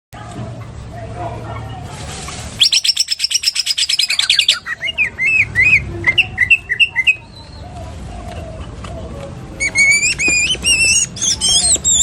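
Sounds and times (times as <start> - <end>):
bird singing trills and whistles: 2.6 - 7.7, 9.6 - 12.0.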